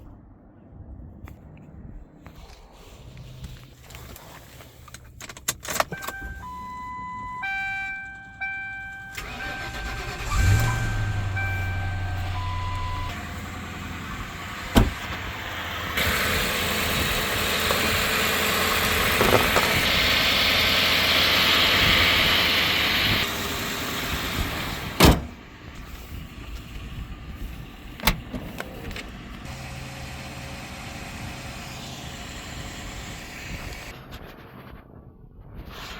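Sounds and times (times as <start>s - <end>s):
car engine cranking and running: 3.7s - 33.9s
car warning chimes: 5.8s - 13.5s.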